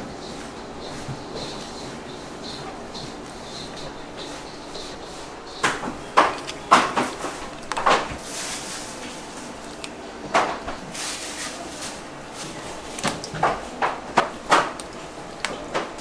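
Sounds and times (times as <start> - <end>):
steady background noise: 0.0 - 16.0
utensils knocking and clattering: 0.2 - 16.0.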